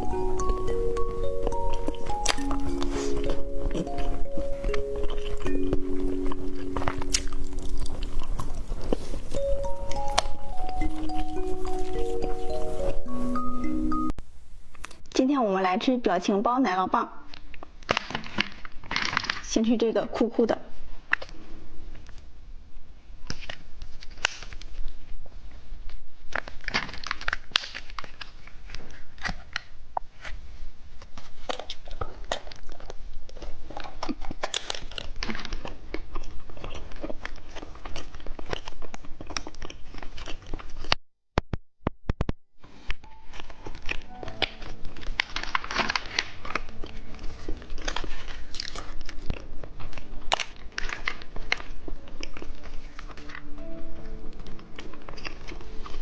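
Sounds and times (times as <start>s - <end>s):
person chewing snack: 0.0s - 15.0s, 31.5s - 41.0s, 43.2s - 56.0s.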